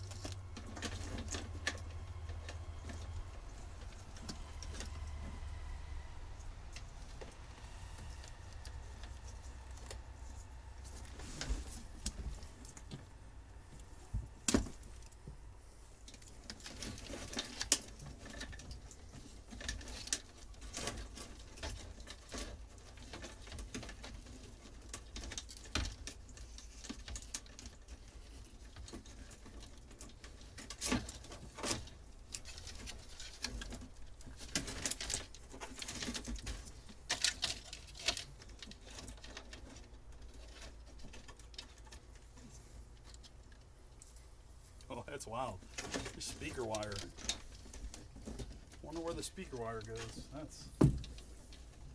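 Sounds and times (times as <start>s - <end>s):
wires rustling: 0.0s - 51.9s.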